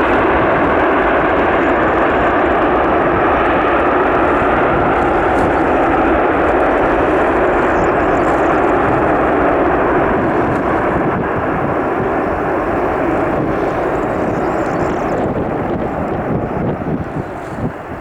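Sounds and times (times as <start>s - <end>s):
aircraft engines running: 0.0s - 18.0s.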